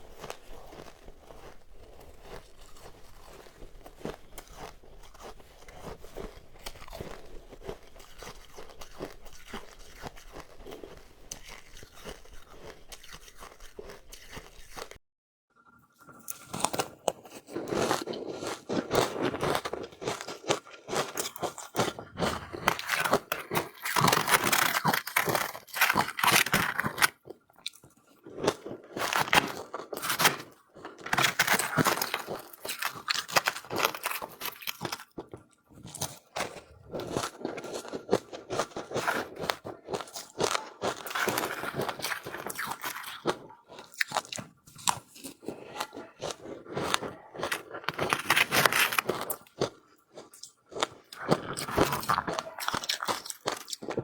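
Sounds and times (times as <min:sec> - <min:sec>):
person chewing crunchy ice: 0:00.0 - 0:15.0, 0:16.1 - 0:54.0.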